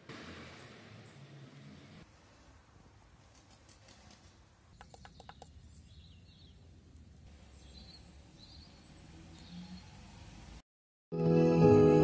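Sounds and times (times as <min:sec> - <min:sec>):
distant bird chirps: 0:04.2 - 0:06.7, 0:07.4 - 0:10.1.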